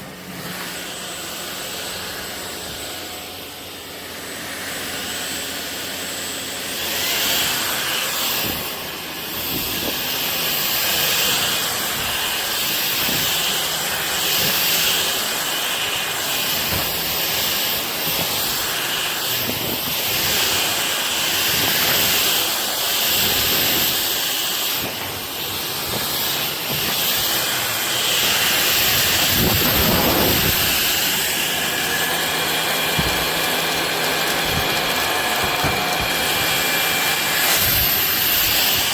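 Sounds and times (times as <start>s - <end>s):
stick vacuum running: 0.0s - 38.9s.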